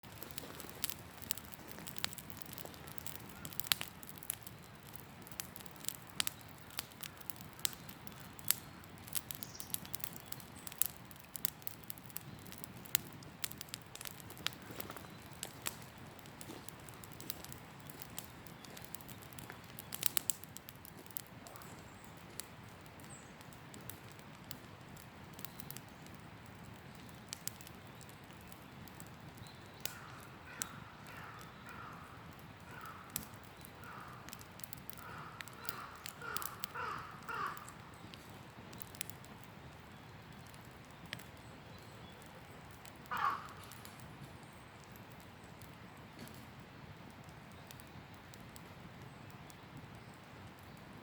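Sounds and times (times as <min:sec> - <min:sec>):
campfire crackling and popping: 0:00.0 - 0:51.0
bird calling: 0:35.0 - 0:37.8.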